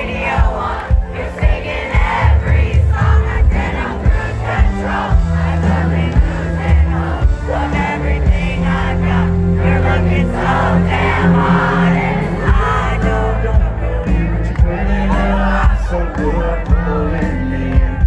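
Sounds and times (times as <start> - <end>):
crowd singing along: 0.0 - 18.0
heavy bass notes: 0.0 - 18.0
live country band: 0.0 - 18.0.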